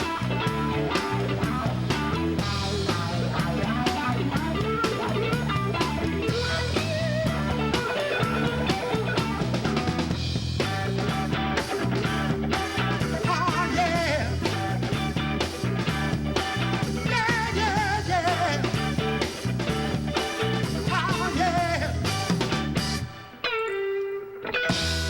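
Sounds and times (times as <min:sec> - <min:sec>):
drum kit beat: 0:00.0 - 0:23.2, 0:24.7 - 0:25.0
rock band playing: 0:00.0 - 0:25.0.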